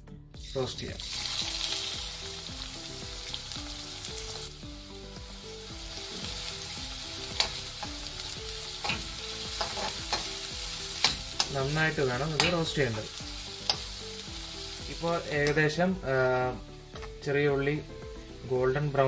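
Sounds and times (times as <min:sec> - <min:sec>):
shallots sizzling in hot oil: 0:00.4 - 0:19.0
metal spatula scraping a wok: 0:08.8 - 0:11.5.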